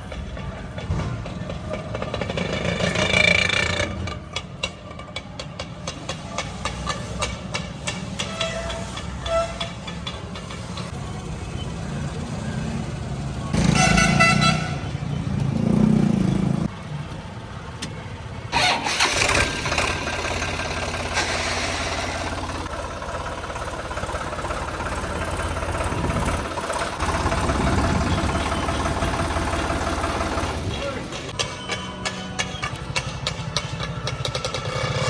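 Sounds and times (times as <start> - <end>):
diesel tractor engine running: 9.8 - 35.0
vehicle horn honking: 13.6 - 15.0.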